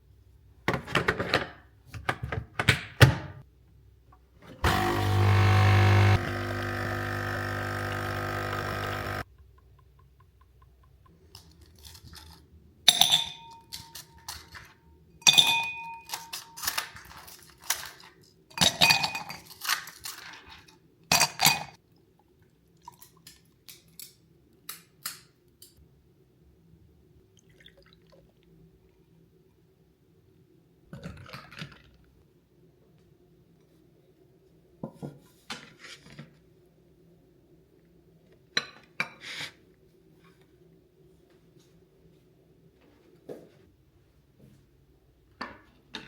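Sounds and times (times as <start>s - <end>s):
dishes and glassware clinking: 12.9s - 14.5s, 15.2s - 16.7s.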